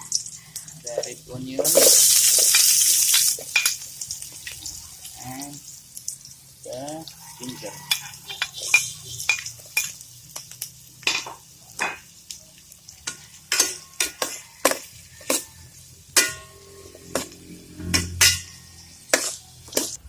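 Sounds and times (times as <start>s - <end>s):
food sizzling in oil: 0.0s - 20.0s
utensil scraping a pan: 13.1s - 15.6s, 16.2s - 20.0s.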